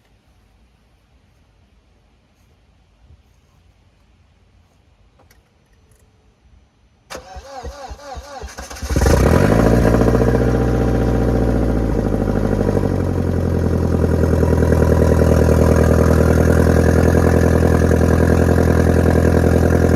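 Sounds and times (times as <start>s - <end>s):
car engine idling: 7.1s - 19.9s.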